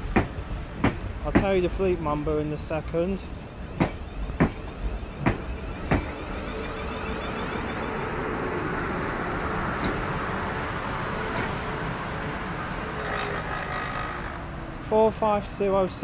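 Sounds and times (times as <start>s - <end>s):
wheels rumbling on rail: 0.0s - 16.0s
wheels clacking over rail joints: 3.7s - 6.2s, 12.9s - 14.4s.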